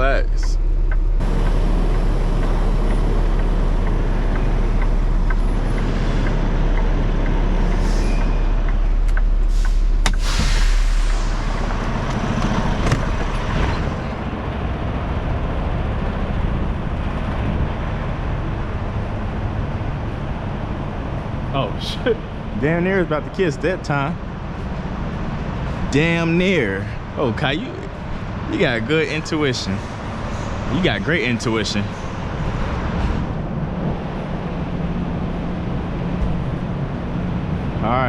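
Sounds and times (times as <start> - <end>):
truck diesel engine running: 0.0 - 38.0
air hiss: 9.5 - 11.6.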